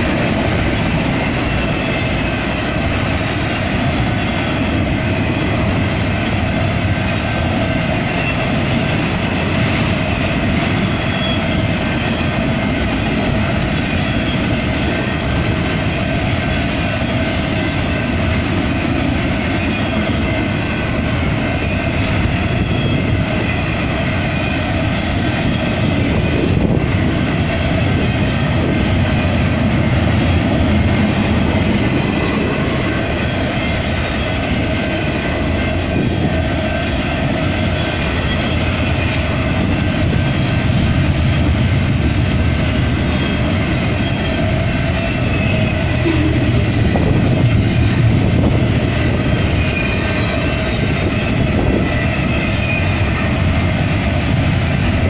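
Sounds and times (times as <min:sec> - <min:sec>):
rumble of steel wheels on rail: 0:00.0 - 0:55.0
high ringing tones: 0:45.0 - 0:48.3.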